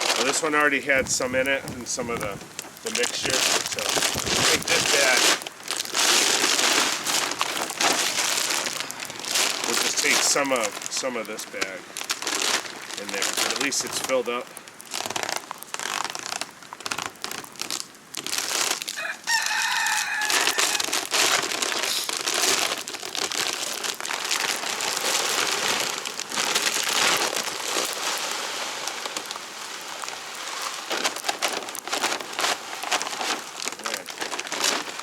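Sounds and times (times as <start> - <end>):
grain pouring hiss: 0.0 - 35.0
chicken calling: 19.0 - 20.9.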